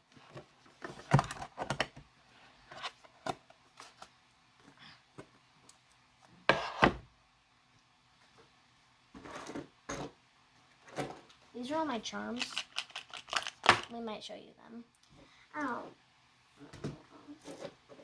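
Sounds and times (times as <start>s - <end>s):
plastic clatter: 12.4s - 14.0s
plastic containers clicking and knocking: 12.4s - 14.0s.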